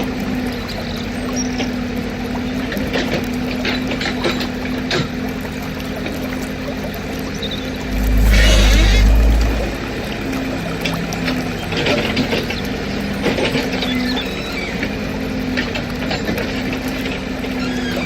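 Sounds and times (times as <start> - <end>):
low steady drone: 7.6 - 11.2.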